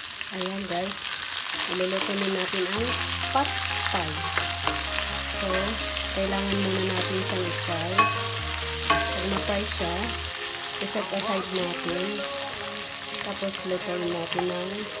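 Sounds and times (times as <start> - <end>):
beans sizzling in hot oil: 0.0 - 15.0
background music with bass: 2.8 - 13.3.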